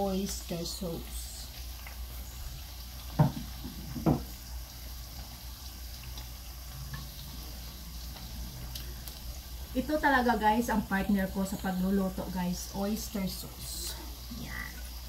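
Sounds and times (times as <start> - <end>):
food sizzling in a pot: 0.0 - 15.0
sharp knocks: 3.2 - 4.3.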